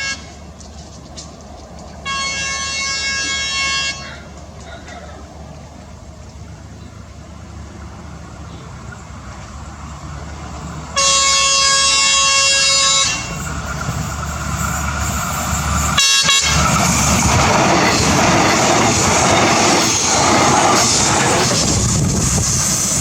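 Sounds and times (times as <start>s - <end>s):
train horn blasts: 0.0s - 0.5s, 2.0s - 4.3s, 11.0s - 13.5s, 15.9s - 16.8s
passing train rumble and rail noise: 0.0s - 23.0s.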